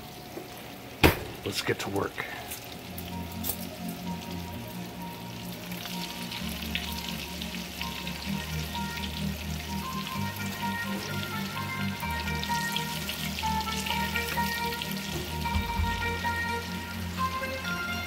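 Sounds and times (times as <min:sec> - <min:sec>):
food deep-frying in hot oil: 0:00.0 - 0:18.0
background music: 0:02.3 - 0:18.0.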